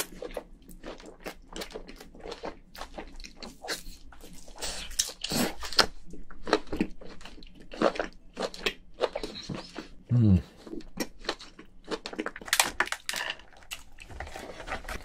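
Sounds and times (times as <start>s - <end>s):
person chewing and biting: 0.0s - 14.4s.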